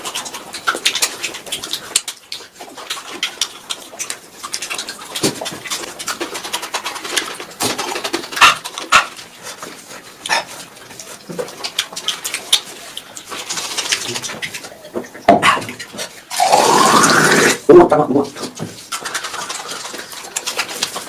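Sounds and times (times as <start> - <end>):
lip-smacking: 0.0 - 17.7, 18.5 - 21.0
person chewing noisily: 0.0 - 17.7, 18.4 - 21.0.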